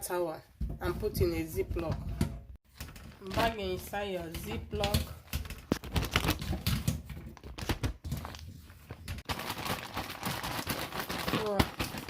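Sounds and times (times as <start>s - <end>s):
plastic bag crinkling: 2.7s - 12.0s.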